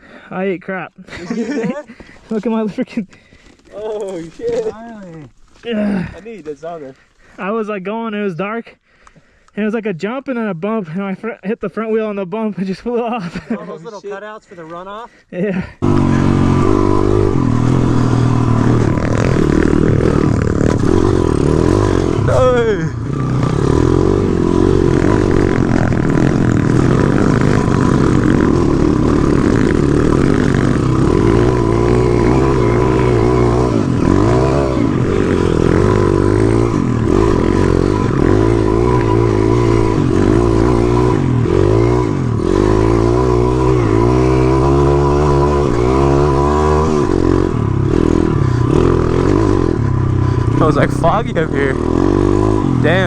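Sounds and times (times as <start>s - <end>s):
motorbike engine revving: 15.8s - 53.0s.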